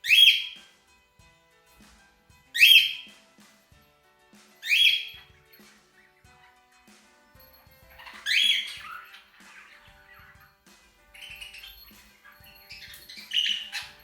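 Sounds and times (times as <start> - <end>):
budgerigar harsh calls: 0.0 - 0.6, 2.6 - 3.1, 4.6 - 5.3, 7.9 - 10.4, 11.2 - 14.0.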